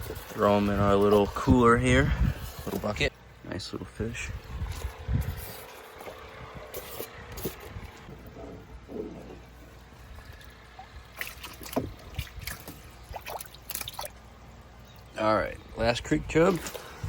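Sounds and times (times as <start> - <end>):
low steady hum: 0.0 - 17.0
water splashing and dripping: 9.4 - 15.2.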